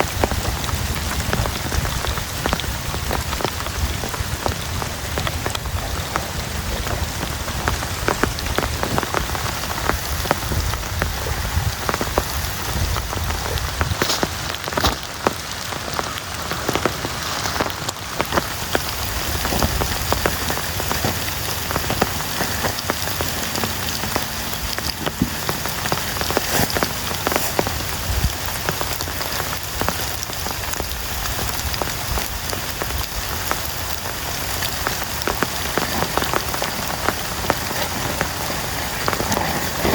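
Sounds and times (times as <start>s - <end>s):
heavy rain hiss: 0.0s - 39.9s
raindrops striking sharply: 0.0s - 39.9s.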